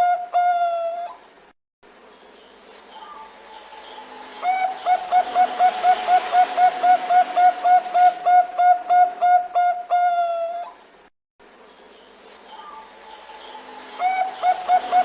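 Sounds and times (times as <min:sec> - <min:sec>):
dove cooing: 0:03.0 - 0:10.8, 0:12.6 - 0:15.0.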